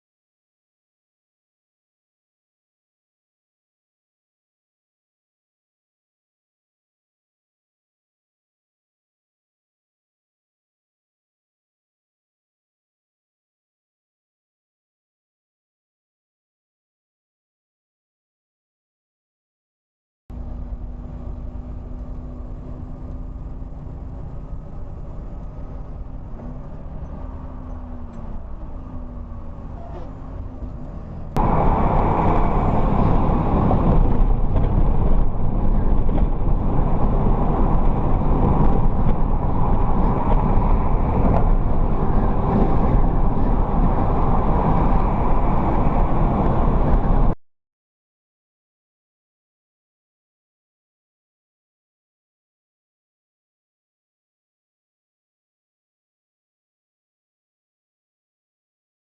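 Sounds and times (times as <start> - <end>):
vehicle road and engine noise: 20.3 - 47.4.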